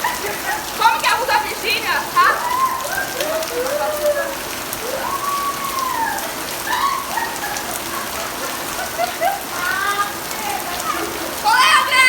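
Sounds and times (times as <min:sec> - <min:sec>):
rain pattering on surfaces: 0:00.0 - 0:12.0
faint rising and falling calls: 0:01.3 - 0:09.4.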